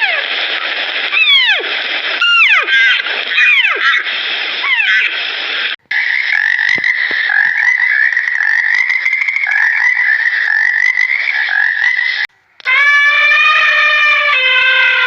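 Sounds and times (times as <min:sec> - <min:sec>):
frogs calling in pulsing trill: 0:05.9 - 0:12.3.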